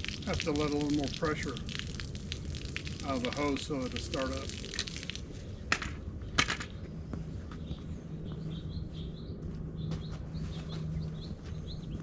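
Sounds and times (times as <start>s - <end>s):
low hum and rumble: 0.0s - 12.0s
songbirds chirping: 5.3s - 12.0s.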